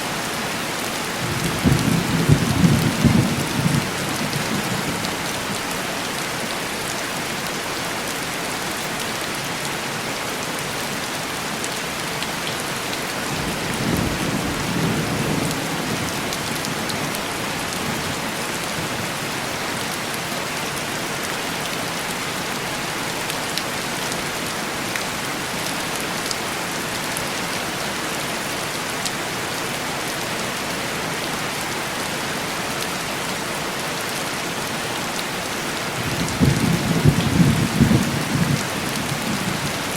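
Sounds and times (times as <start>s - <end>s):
heavy rain on window glass: 0.6s - 6.7s, 12.2s - 20.3s, 34.9s - 39.9s.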